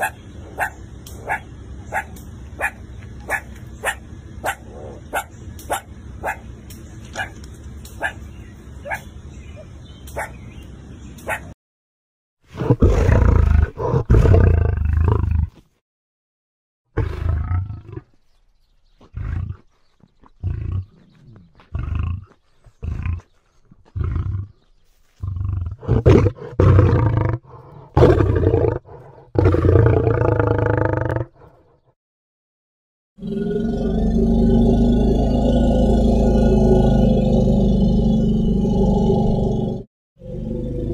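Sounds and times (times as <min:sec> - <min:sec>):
lion roaring: 0:12.5 - 0:15.6, 0:17.0 - 0:18.1, 0:25.2 - 0:31.6, 0:33.2 - 0:40.9
lion grunting: 0:19.0 - 0:31.7.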